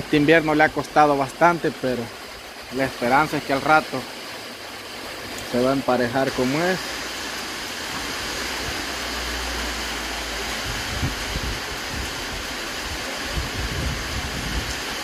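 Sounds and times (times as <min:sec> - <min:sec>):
light rain falling: 0:00.0 - 0:15.0
wind on microphone: 0:10.4 - 0:15.0.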